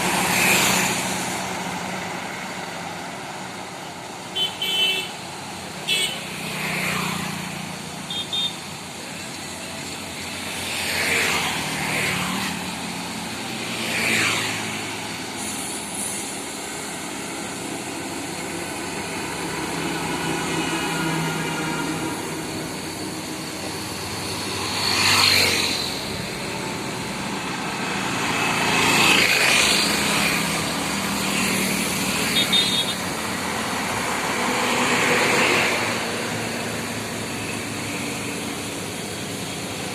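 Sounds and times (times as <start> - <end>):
trucks and cars passing: 0.0 - 39.9
short horn beeps: 32.4 - 33.0.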